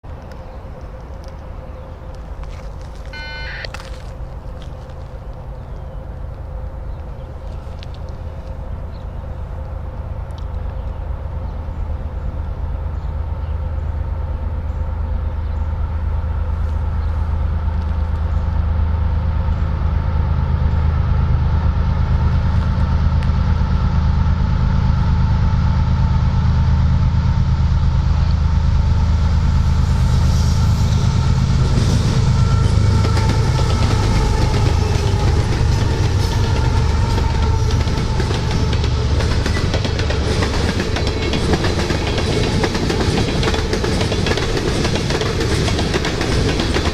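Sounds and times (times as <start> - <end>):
locomotive engine drone: 0.0 - 46.9
train wheels clattering over rails: 30.2 - 46.9.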